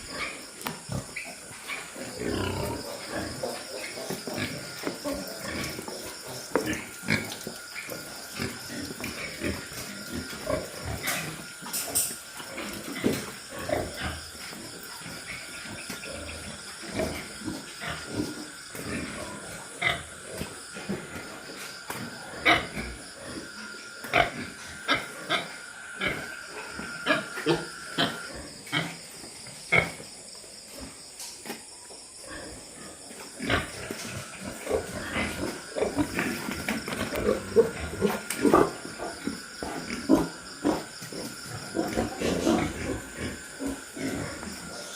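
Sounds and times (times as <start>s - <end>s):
pigs high cries: 0.0s - 29.0s, 33.4s - 44.9s
pigs grunting: 0.0s - 30.1s, 32.2s - 44.9s
loud pig call: 15.1s - 29.0s.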